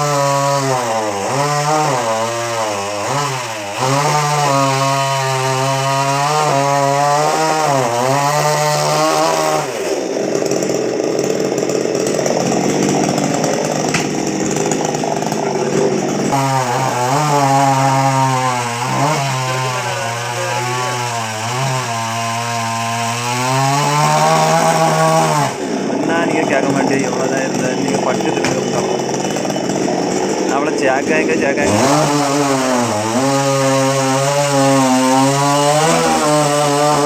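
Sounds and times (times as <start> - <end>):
chainsaw running: 0.0 - 37.0.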